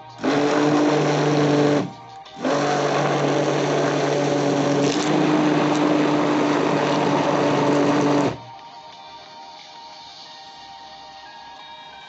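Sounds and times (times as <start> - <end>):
immersion blender humming: 0.0 - 8.5.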